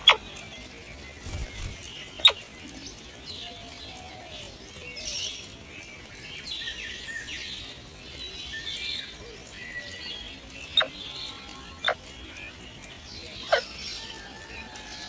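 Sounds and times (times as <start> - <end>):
blackbirds chirping: 0.0 - 15.0.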